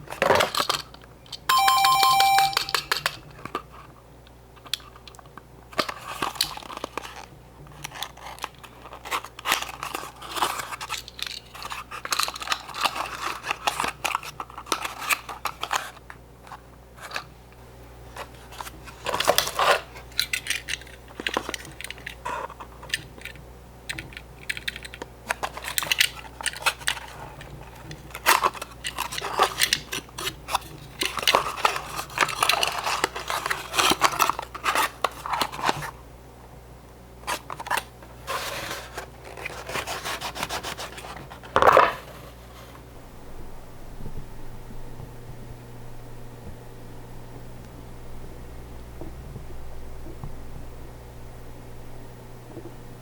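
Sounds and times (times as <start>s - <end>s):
short bright ringing tone: 1.5s - 2.8s
toy cars clicking and tapping: 19.1s - 22.2s, 22.8s - 34.8s.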